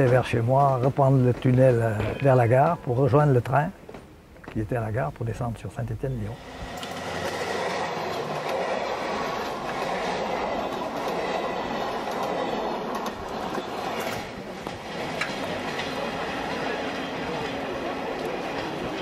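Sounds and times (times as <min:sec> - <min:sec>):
train wheels rumbling on rails: 0:00.0 - 0:04.6, 0:06.3 - 0:19.0.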